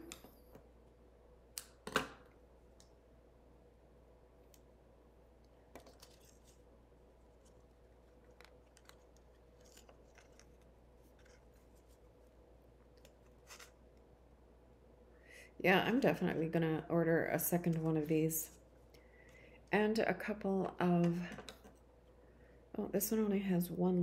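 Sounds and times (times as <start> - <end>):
quiet room hum: 0.0 - 24.0
handling twine and paper tags: 7.3 - 12.1.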